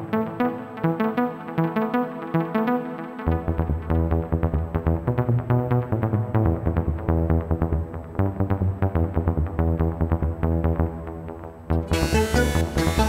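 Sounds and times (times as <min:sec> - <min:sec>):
sustained synth bass line: 0:03.3 - 0:13.0
plucked synth notes: 0:11.7 - 0:13.0.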